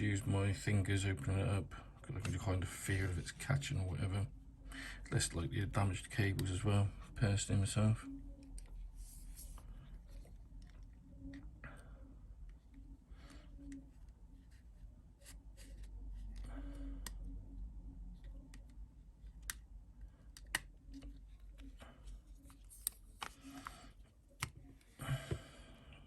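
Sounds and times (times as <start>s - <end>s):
light scraping of phone screen: 8.6s - 10.7s.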